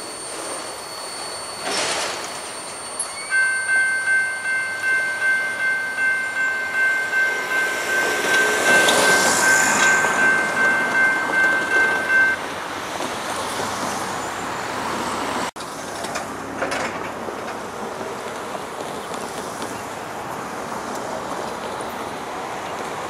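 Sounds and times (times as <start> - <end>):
railroad crossing bell ringing: 0.0 - 12.7
freight train rolling past: 0.0 - 23.0.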